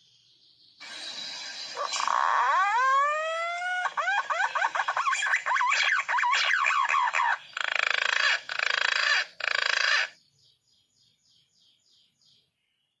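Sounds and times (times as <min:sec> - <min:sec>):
harsh rattling bird notes: 0:00.8 - 0:10.2.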